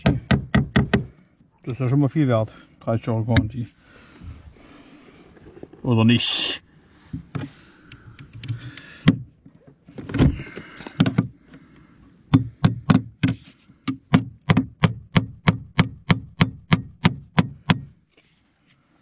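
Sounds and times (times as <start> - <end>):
hammer striking nail: 0.0 - 1.1, 12.3 - 17.9.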